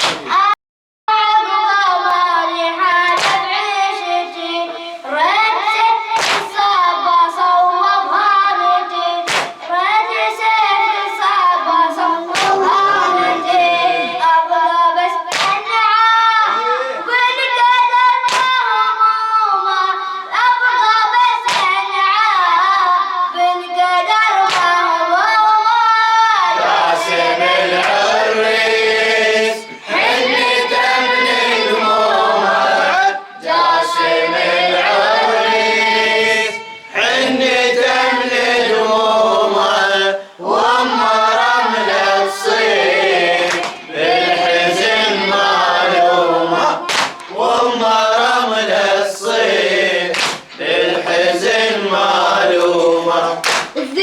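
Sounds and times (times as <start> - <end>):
hands striking chest: 0.0 - 0.4, 3.2 - 3.4, 6.2 - 6.5, 9.3 - 9.6, 43.5 - 43.8, 46.9 - 47.4, 50.1 - 50.6, 53.4 - 53.8
group singing in chorus: 0.0 - 0.5, 1.5 - 54.0
person chanting a lament: 1.2 - 54.0.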